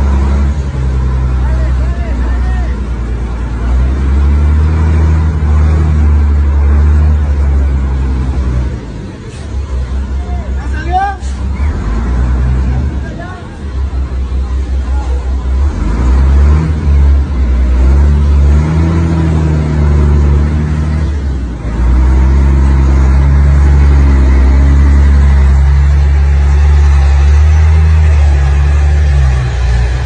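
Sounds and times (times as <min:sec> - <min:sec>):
loud engine droning: 0:00.0 - 0:30.0.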